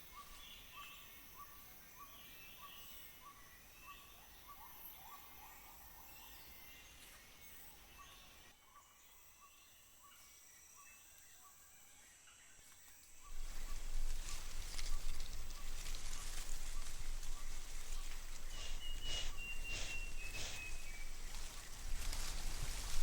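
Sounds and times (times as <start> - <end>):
faint insect hum: 0.0 - 23.0
bird whistled note: 18.6 - 20.8.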